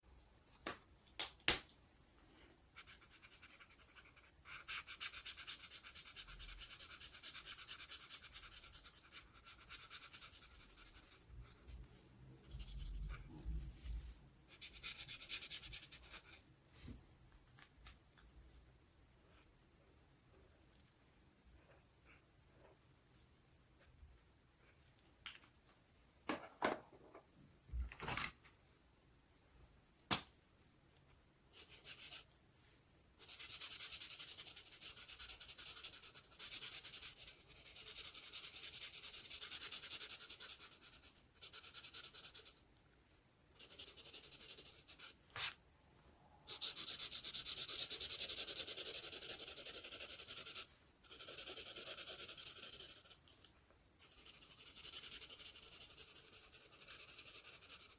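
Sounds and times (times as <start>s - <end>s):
markers scratching on paper: 2.8s - 11.7s, 43.5s - 45.6s, 46.5s - 53.2s, 54.0s - 57.9s.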